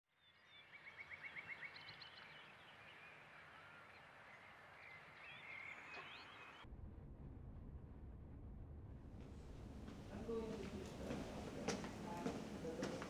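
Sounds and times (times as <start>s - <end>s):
faint birdsong: 0.1s - 6.7s
low indoor rumble: 6.7s - 13.0s.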